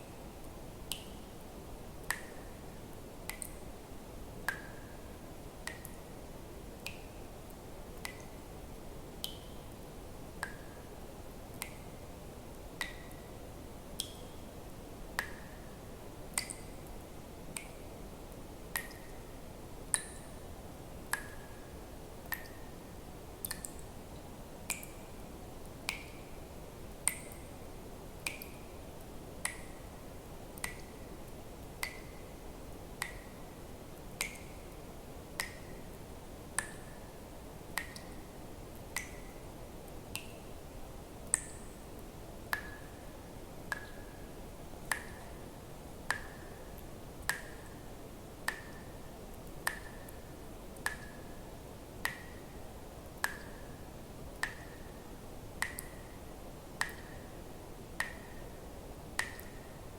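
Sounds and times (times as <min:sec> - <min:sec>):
faint steady hiss: 0:00.0 - 0:59.9
water drops plinking into water: 0:02.0 - 0:02.6, 0:03.3 - 0:03.6, 0:04.5 - 0:06.2, 0:08.0 - 0:08.4, 0:09.2 - 0:09.8, 0:10.4 - 0:10.8, 0:11.5 - 0:12.0, 0:12.8 - 0:13.4, 0:14.0 - 0:14.4, 0:15.2 - 0:15.6, 0:16.3 - 0:16.9, 0:17.5 - 0:17.8, 0:18.7 - 0:19.2, 0:19.9 - 0:20.4, 0:21.1 - 0:22.8, 0:23.4 - 0:24.0, 0:24.6 - 0:26.3, 0:27.0 - 0:27.5, 0:28.2 - 0:29.9, 0:30.5 - 0:31.0, 0:31.6 - 0:32.2, 0:33.0 - 0:33.4, 0:34.1 - 0:34.6, 0:35.4 - 0:35.9, 0:36.6 - 0:37.0, 0:37.8 - 0:39.4, 0:42.5 - 0:43.0, 0:43.7 - 0:44.1, 0:44.8 - 0:45.4, 0:46.1 - 0:46.5, 0:48.4 - 0:50.2, 0:50.8 - 0:51.3, 0:52.0 - 0:52.4, 0:53.1 - 0:53.6, 0:54.4 - 0:54.9, 0:55.6 - 0:56.1, 0:56.8 - 0:57.2, 0:58.0 - 0:58.5, 0:59.2 - 0:59.7.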